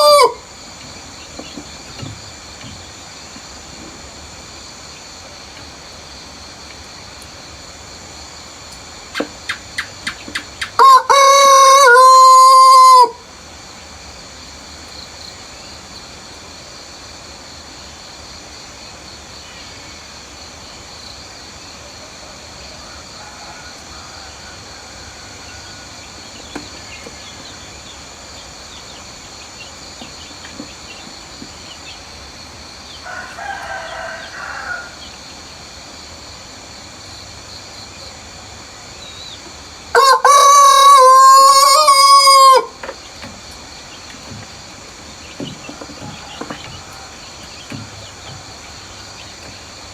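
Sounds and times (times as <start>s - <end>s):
rooster crowing: 0.0s - 0.5s, 10.8s - 13.2s, 22.3s - 26.1s, 33.0s - 35.2s, 39.9s - 42.8s
birds: 0.0s - 16.6s, 18.9s - 36.2s, 37.0s - 49.9s
insects: 0.0s - 49.9s.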